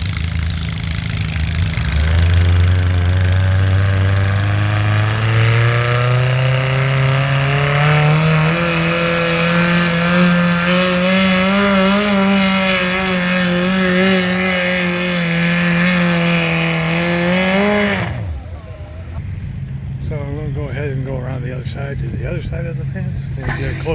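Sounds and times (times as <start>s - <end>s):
garden tractor engine at full throttle: 0.0s - 23.9s.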